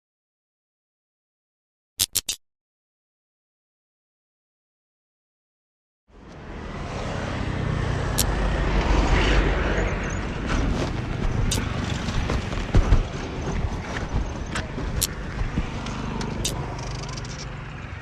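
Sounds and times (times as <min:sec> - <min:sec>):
sharp clicks: 0:02.0 - 0:02.4, 0:12.5 - 0:17.5
motorcycle engine running: 0:10.4 - 0:18.0.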